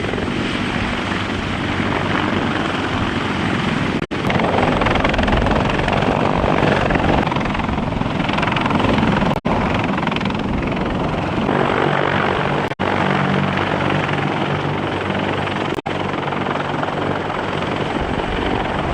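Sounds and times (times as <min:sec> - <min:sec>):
helicopter rotor and engine noise: 0:00.0 - 0:18.9.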